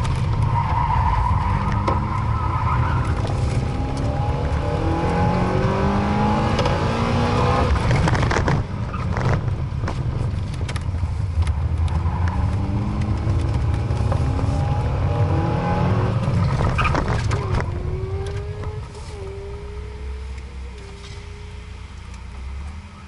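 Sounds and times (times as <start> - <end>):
car engine revving: 0.0 - 10.8, 11.5 - 23.0
knocks and rattles: 16.3 - 18.7.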